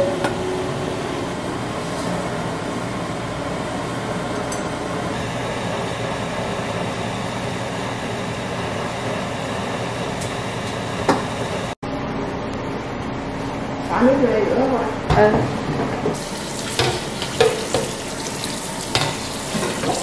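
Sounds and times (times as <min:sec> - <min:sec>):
boiling wok on gas burner: 0:00.8 - 0:11.7, 0:16.2 - 0:20.0.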